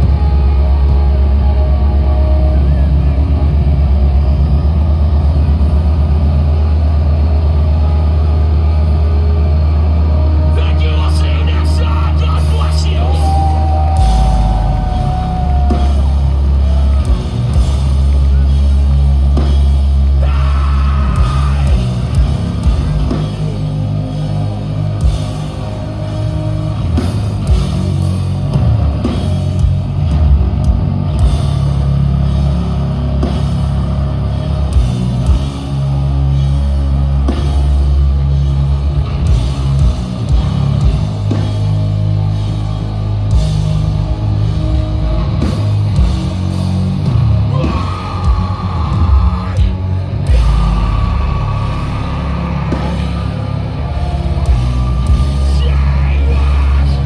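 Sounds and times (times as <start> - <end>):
bass guitar: 0.0 - 57.0
distorted guitars: 0.0 - 57.0
drum kit: 0.0 - 57.0
singing: 47.4 - 57.0.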